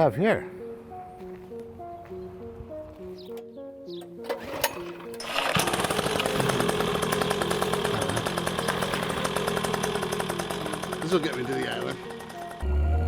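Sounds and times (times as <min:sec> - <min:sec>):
soft plucked music notes: 0:00.0 - 0:05.5, 0:11.2 - 0:13.0
small engine running rattly: 0:05.2 - 0:12.6.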